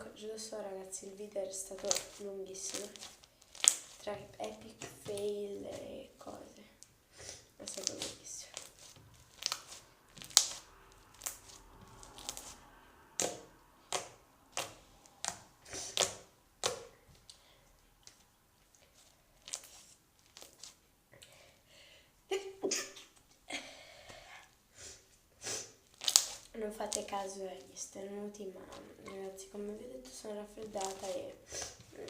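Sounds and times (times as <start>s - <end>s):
slime squeezed by hand: 1.7s - 4.1s, 7.3s - 17.3s, 18.8s - 20.8s, 25.5s - 27.2s.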